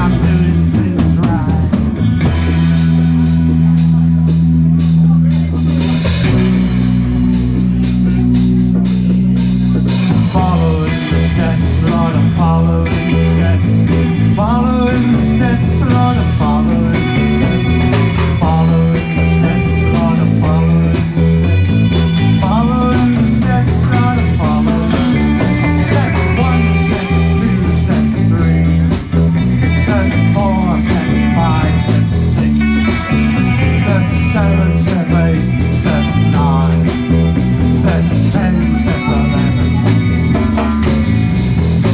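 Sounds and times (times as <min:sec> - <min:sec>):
bass line: 0:00.0 - 0:41.9
drums: 0:00.0 - 0:41.9
electric lead guitar bending notes: 0:00.0 - 0:41.9.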